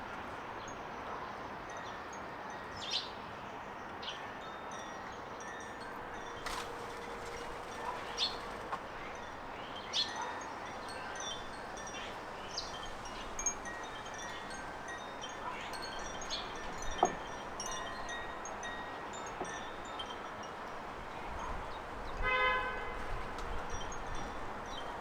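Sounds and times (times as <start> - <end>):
birds chirping: 7.7 - 10.2.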